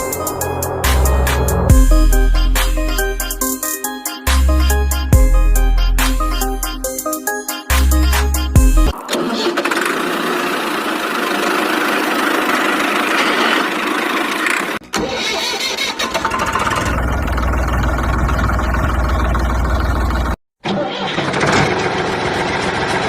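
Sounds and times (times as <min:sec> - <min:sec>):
engine running: 0:00.0 - 0:03.4, 0:09.1 - 0:14.8, 0:16.0 - 0:20.4.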